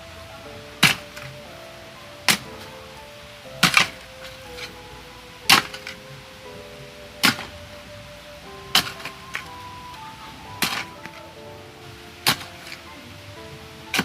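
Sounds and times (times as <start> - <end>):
faint sustained music notes: 0.0 - 14.0
digging tool chopping soil: 0.8 - 1.3, 3.6 - 4.0, 5.5 - 5.9, 7.2 - 7.5, 10.6 - 10.9.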